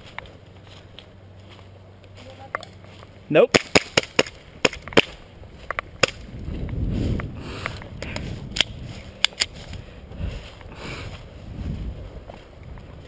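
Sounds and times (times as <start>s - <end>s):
low rumble of wind: 0.0s - 13.0s
airsoft guns firing: 3.5s - 5.2s.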